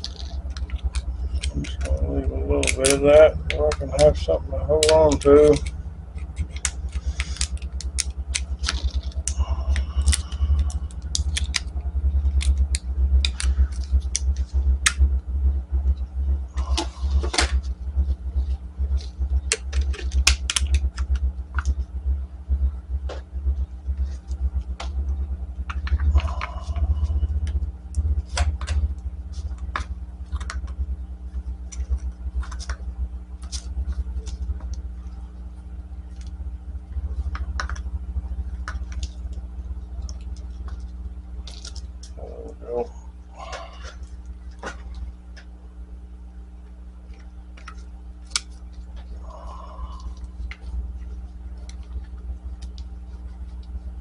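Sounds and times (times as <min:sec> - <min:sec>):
small parts and tools rattling: 0:00.0 - 0:15.0, 0:18.4 - 0:21.8, 0:40.0 - 0:45.0
faint hum: 0:00.0 - 0:54.0
low rumble: 0:00.0 - 0:54.0.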